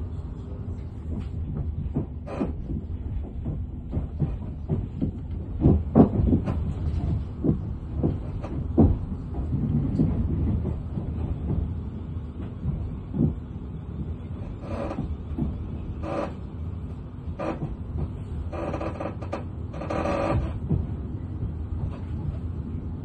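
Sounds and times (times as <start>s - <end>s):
train running rumble: 0.0s - 23.0s
knocks and clunks: 1.1s - 11.8s, 17.4s - 21.0s.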